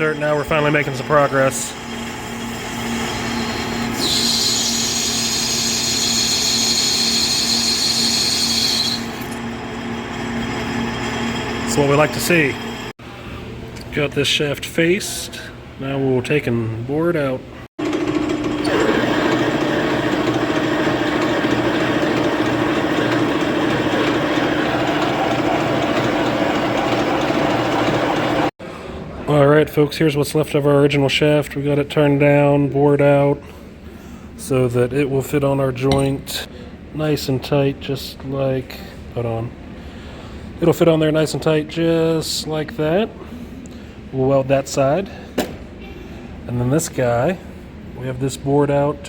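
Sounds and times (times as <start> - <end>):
lathe humming: 0.1 - 12.9, 17.8 - 28.5
high-pitched whine of lathe cutting: 0.5 - 12.9.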